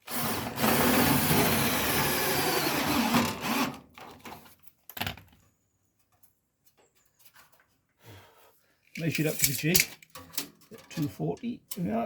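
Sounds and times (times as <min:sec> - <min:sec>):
power drill driving screw into metal: 0:00.0 - 0:03.8.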